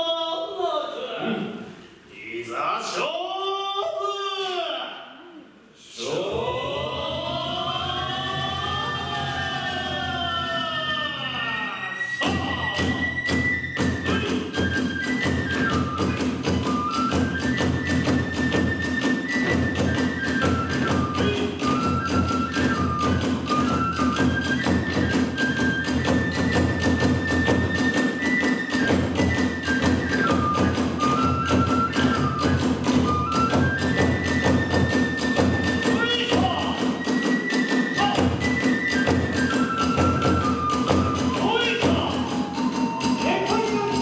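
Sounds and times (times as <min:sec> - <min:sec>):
bamboo flute melody: 0:06.6 - 0:44.0
fast steady drum beat: 0:12.2 - 0:44.0.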